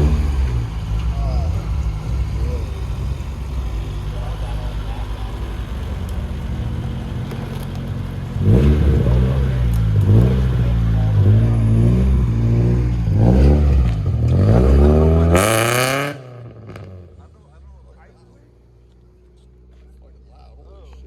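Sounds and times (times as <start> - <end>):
car engine idling and revving: 0.0 - 21.0.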